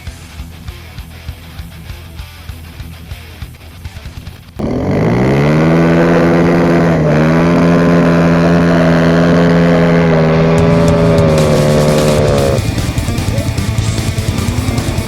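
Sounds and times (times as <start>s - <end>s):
dirt bike engine revving: 4.6s - 15.0s.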